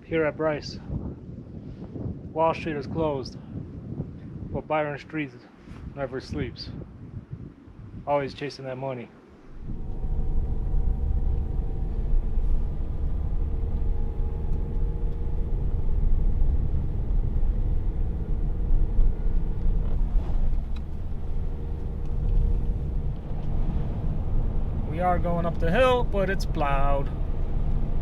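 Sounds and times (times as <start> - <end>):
car engine and road rumble: 9.2 - 28.0.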